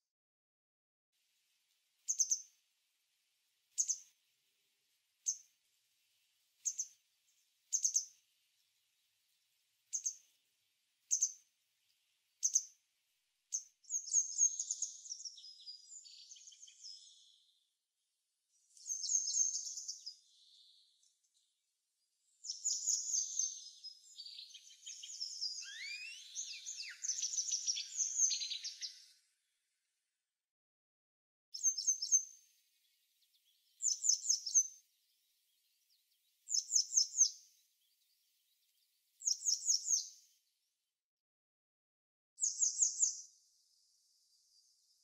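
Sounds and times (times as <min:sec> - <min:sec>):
songbirds calling: 0:02.0 - 0:02.6, 0:03.7 - 0:04.2, 0:06.2 - 0:12.9, 0:13.5 - 0:17.7, 0:18.5 - 0:29.4, 0:31.6 - 0:40.6, 0:42.4 - 0:45.0
high bird twittering: 0:22.5 - 0:29.1.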